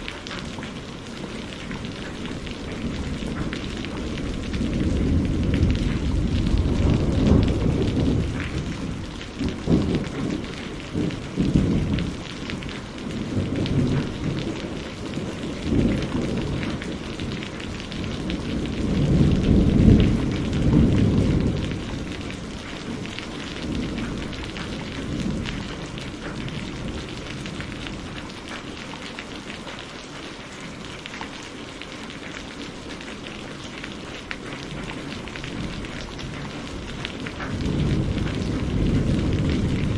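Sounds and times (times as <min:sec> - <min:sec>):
steady rainfall: 0:00.0 - 0:39.9
rolling thunder: 0:01.6 - 0:28.2, 0:34.7 - 0:39.9.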